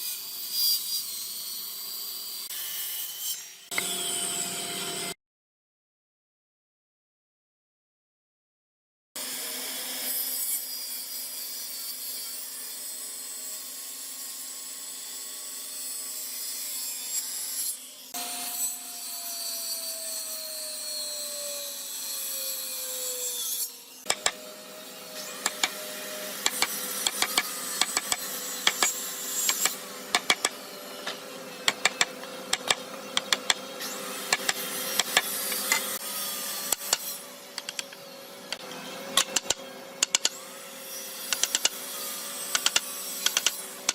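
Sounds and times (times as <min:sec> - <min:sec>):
tool scraping wood: 0:24.0 - 0:24.5, 0:25.1 - 0:40.4, 0:41.1 - 0:43.9
sharp irregular clicks and knocks: 0:24.1 - 0:24.4, 0:25.4 - 0:25.8, 0:26.4 - 0:33.6, 0:34.3 - 0:35.8, 0:37.6 - 0:38.6, 0:39.2 - 0:40.4, 0:41.3 - 0:41.8, 0:42.5 - 0:43.9.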